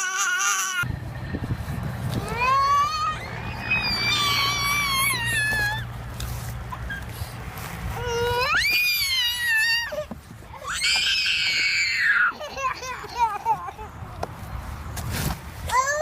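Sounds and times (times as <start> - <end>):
high-pitched wailing cries: 0.0 - 0.9, 2.2 - 6.0, 7.9 - 14.0.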